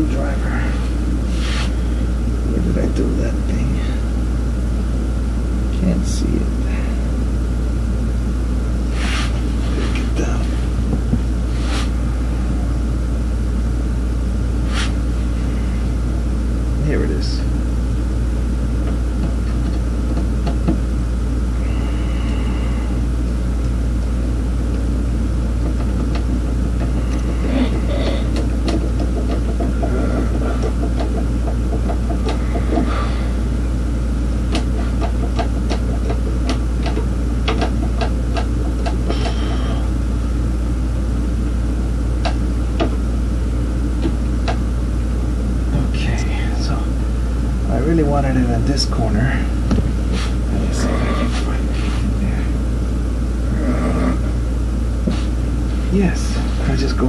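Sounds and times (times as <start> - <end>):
steady low rumble: 0.0 - 57.0
hand tools clicking and tapping: 25.7 - 32.9, 34.5 - 39.6.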